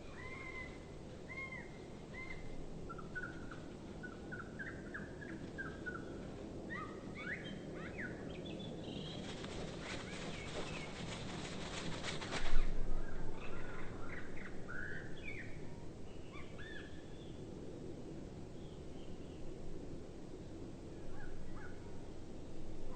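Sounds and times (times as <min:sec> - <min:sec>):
rapid wing flapping: 0:09.1 - 0:12.8.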